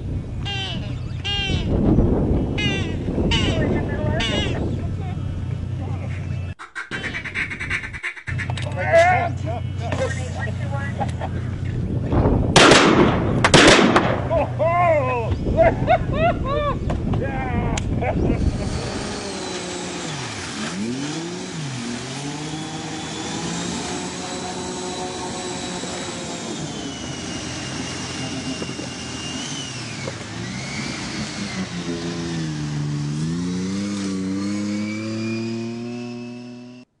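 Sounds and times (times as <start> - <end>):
car engine revving: 18.3 - 36.9
thin high whine: 22.5 - 32.2.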